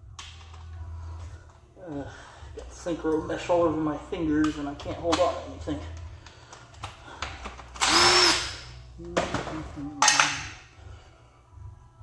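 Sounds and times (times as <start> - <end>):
handheld power tool bursts: 7.8 - 8.7.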